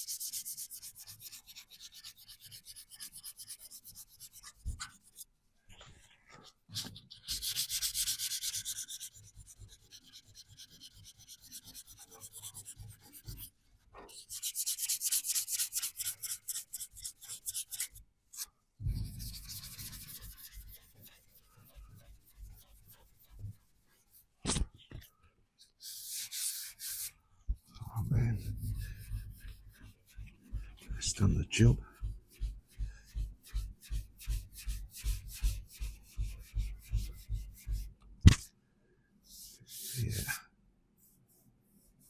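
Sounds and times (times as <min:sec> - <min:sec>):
sanding metal panel by hand: 0:07.1 - 0:13.5, 0:18.9 - 0:24.1, 0:28.0 - 0:37.9.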